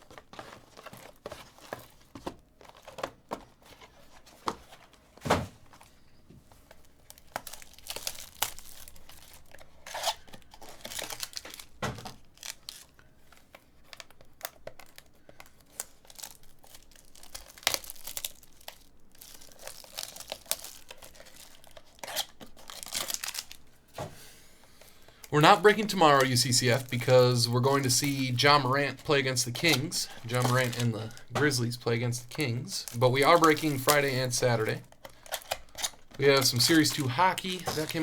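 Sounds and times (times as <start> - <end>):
card packaging tearing and crinkling: 0.0 - 5.1, 6.7 - 23.7, 24.7 - 38.0
cards and cardboard handled: 0.0 - 6.0, 6.6 - 38.0.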